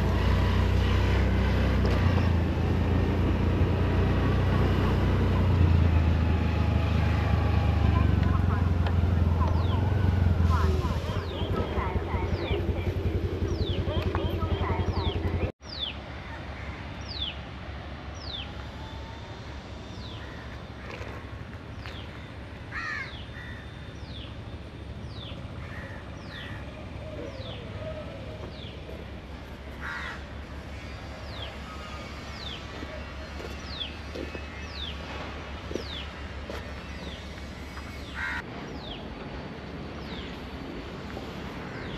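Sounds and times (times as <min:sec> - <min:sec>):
crow cawing: 0:22.7 - 0:23.6, 0:29.8 - 0:30.2, 0:38.2 - 0:38.4.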